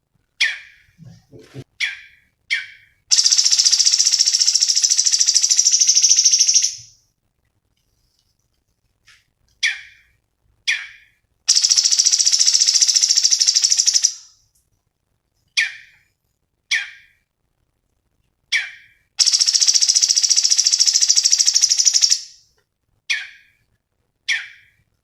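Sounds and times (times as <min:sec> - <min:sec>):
songbird singing: 0:00.4 - 0:06.9, 0:10.7 - 0:14.3, 0:18.5 - 0:22.4.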